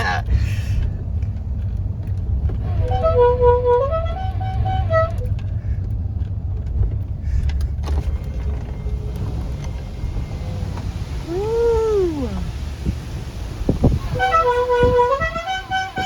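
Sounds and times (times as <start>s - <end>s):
car engine and road rumble: 0.0s - 16.0s
musical car horn: 2.6s - 5.4s, 13.3s - 16.0s.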